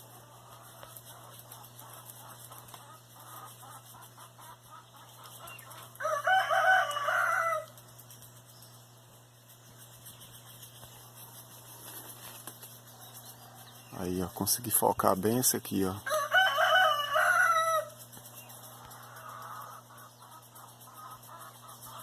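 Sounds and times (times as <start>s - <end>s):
rooster crowing: 5.7s - 7.8s, 16.0s - 18.0s.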